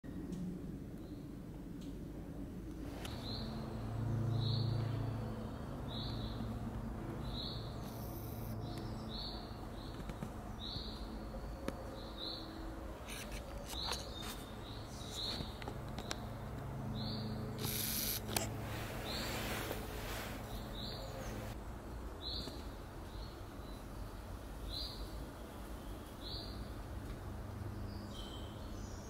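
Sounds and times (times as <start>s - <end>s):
low background hum: 0.1s - 29.0s
small bird high call: 7.3s - 9.3s.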